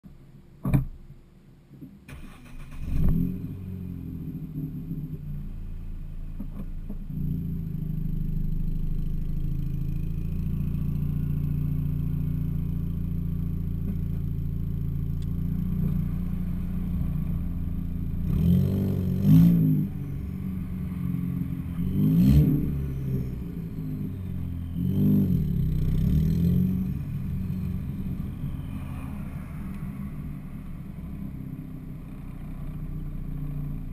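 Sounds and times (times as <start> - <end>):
car engine starting and idling: 0.2 - 33.9.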